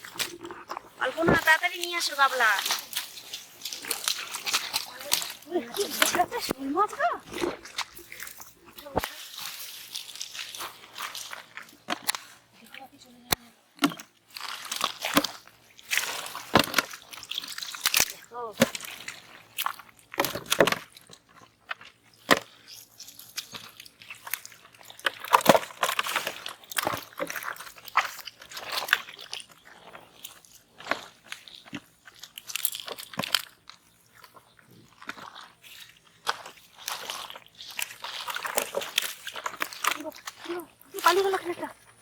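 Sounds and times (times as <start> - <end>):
water splashing: 0.0 - 11.9, 23.4 - 42.0
mud squelching: 0.0 - 42.0.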